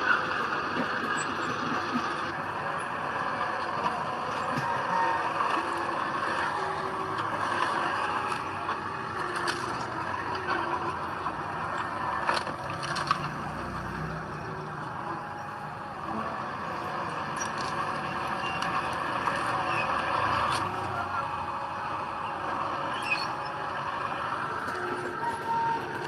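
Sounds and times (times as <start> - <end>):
diesel machinery engine drone: 0.0 - 26.0.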